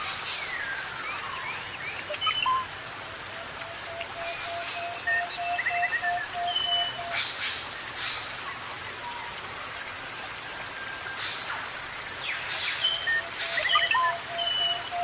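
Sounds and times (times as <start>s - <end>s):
rain hiss: 0.0s - 15.0s
bird calling: 3.4s - 7.3s, 12.8s - 15.0s.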